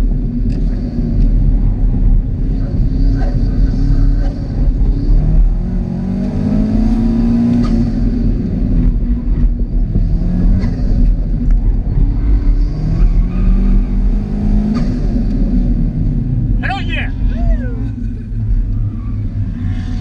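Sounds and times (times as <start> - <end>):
car engine revving: 0.4 - 20.0.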